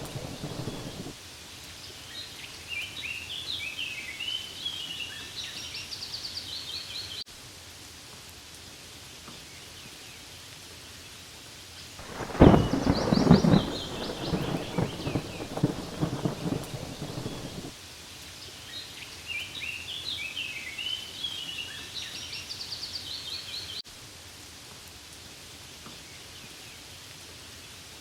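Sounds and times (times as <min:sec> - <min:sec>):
thunder rumble: 0:00.0 - 0:01.2, 0:12.0 - 0:17.7
steady rain: 0:00.0 - 0:28.0.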